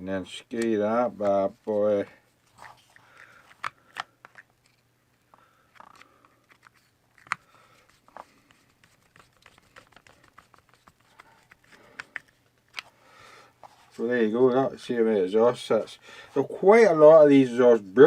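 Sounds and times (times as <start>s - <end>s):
plastic and metal parts handled: 0.5s - 13.0s.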